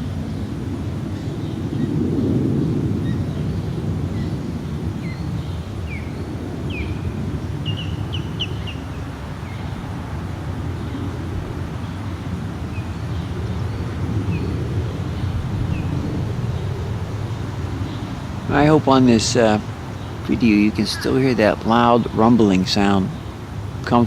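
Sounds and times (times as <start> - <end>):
jet engines rumbling: 0.0 - 24.0
small bird chirping: 5.0 - 9.9.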